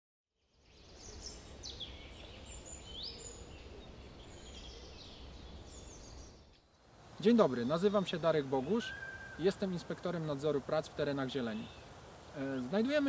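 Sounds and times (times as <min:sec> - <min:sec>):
songbirds whistling and chirping: 0:08.6 - 0:09.7.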